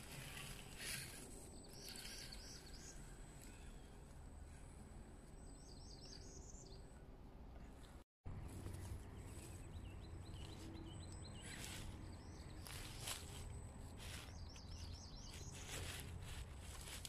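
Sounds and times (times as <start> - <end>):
small birds chirping: 0.0 - 17.0
rustling swishes: 11.4 - 17.0.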